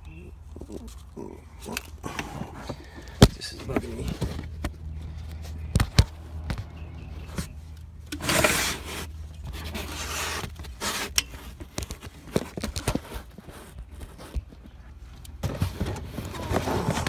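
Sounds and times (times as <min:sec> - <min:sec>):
rustling scrape of parts: 0:07.3 - 0:14.7.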